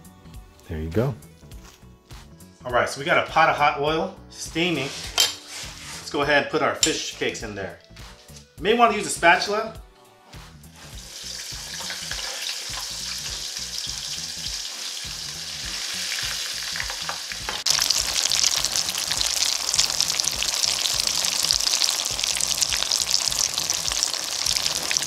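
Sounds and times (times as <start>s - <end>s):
patties deep-frying in oil: 10.8s - 25.0s.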